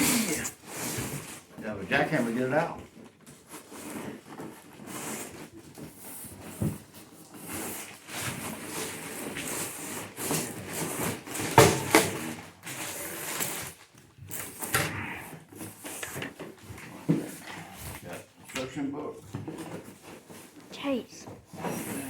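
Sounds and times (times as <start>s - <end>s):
cardboard packaging rustling: 2.2s - 14.7s.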